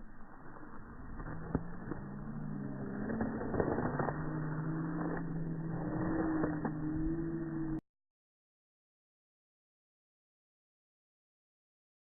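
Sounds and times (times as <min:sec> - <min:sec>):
low motor hum: 0:00.0 - 0:07.8.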